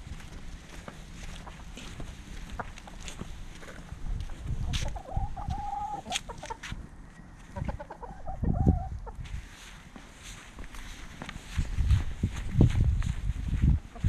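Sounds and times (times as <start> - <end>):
chickens clucking: 0.6 - 2.2, 2.8 - 9.5, 13.5 - 14.0.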